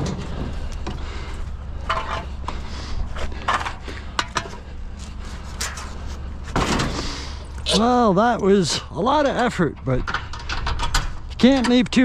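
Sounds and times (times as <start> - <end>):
scrap metal clunking and scraping: 0.0 - 7.6.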